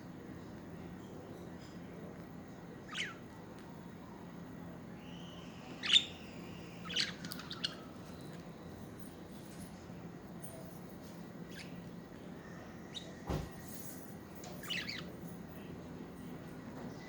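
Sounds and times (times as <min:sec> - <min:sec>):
budgerigars chirping: 0:02.9 - 0:03.2, 0:06.8 - 0:07.9, 0:14.7 - 0:15.1.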